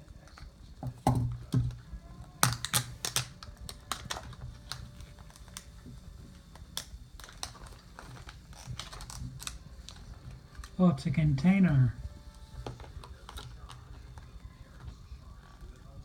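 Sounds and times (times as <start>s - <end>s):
plastic packaging clicks and taps: 0.2s - 5.7s, 6.5s - 10.0s, 12.6s - 14.9s.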